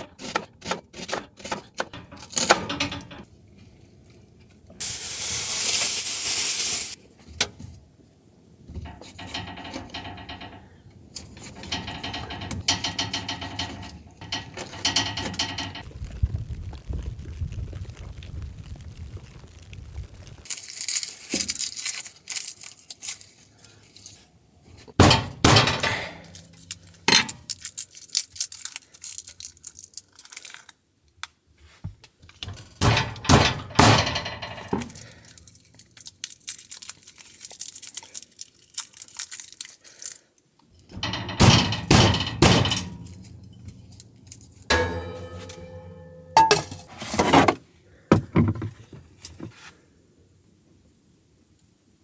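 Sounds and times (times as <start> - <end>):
objects knocking and thudding: 8.7 - 15.9, 24.9 - 27.3, 31.9 - 35.2, 40.9 - 44.0, 44.6 - 49.6.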